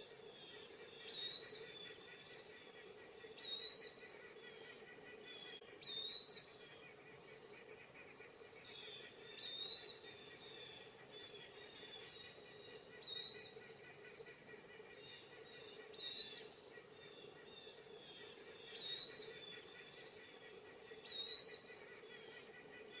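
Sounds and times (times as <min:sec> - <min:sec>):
bird whistled calls: 0:01.1 - 0:01.7, 0:03.4 - 0:04.0, 0:05.8 - 0:06.5, 0:21.0 - 0:21.6.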